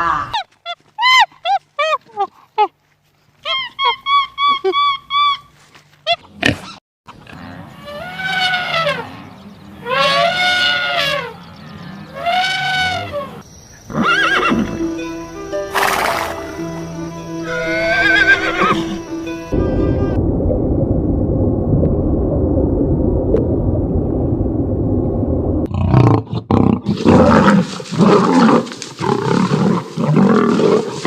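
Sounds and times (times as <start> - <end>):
horse whinnying: 12.2 - 14.8, 17.5 - 19.0
music with held tones: 14.4 - 20.2.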